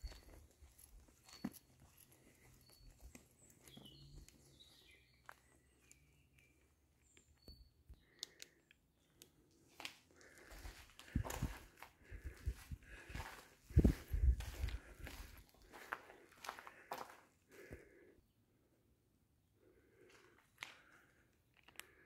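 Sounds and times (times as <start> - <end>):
faint bird chirps: 1.2 - 9.3
light clicks: 7.2 - 9.3.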